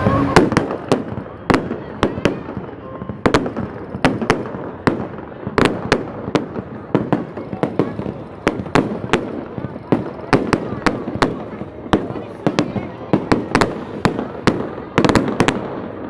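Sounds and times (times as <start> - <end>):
fireworks bangs with echo: 0.0 - 16.0.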